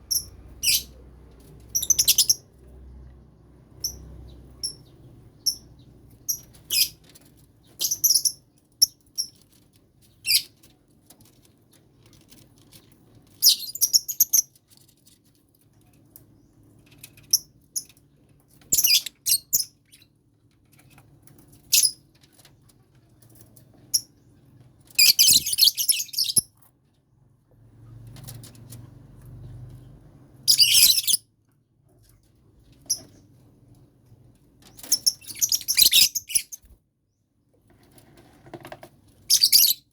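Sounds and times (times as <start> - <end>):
lovebirds chirping: 0.0 - 1.0, 1.6 - 2.5, 3.8 - 9.3, 25.0 - 26.5, 30.4 - 31.2, 34.8 - 36.8, 39.3 - 39.9.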